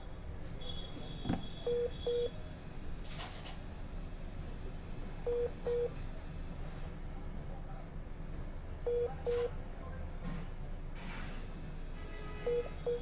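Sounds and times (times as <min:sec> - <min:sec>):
phone double beeps: 0:00.6 - 0:02.3, 0:05.3 - 0:05.9, 0:08.9 - 0:09.5, 0:12.5 - 0:13.0.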